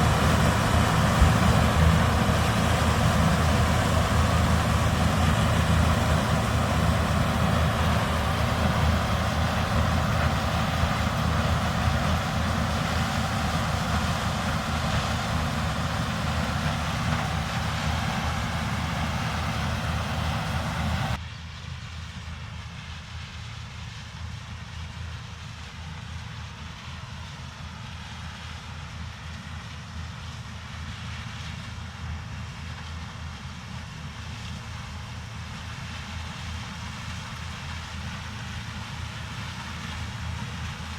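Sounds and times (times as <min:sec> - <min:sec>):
dull engine drone: 0:00.0 - 0:21.2
heavy diesel farm machinery: 0:00.0 - 0:21.6, 0:22.4 - 0:40.9.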